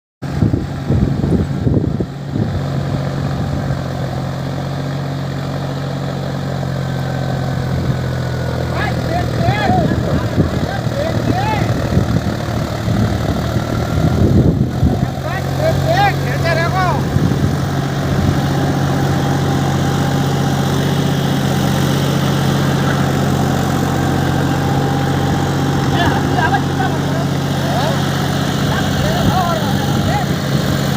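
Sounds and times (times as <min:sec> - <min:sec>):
diesel tractor engine idling: 0:00.3 - 0:30.9.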